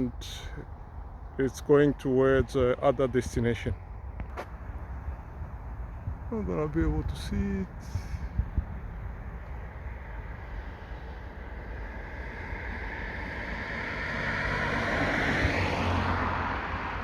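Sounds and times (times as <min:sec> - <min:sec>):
passing vehicle rushing: 0:04.4 - 0:17.0.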